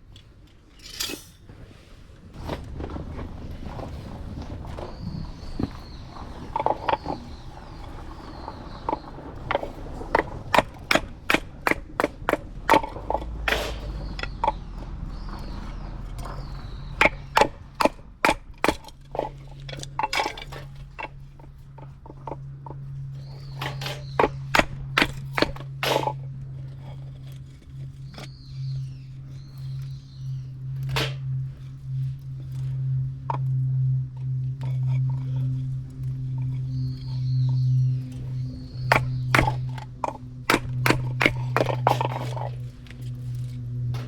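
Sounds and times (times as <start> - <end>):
low steady hum: 0.0 - 44.0
bird calling: 4.6 - 18.2, 34.6 - 42.6
firewood cracking and snapping: 36.2 - 44.0.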